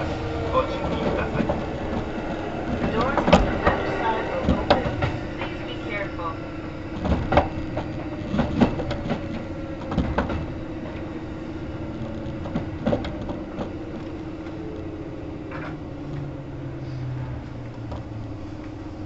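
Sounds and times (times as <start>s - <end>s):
train hum under the floor: 0.0s - 19.0s
wheels clicking over rail joints: 0.0s - 19.0s.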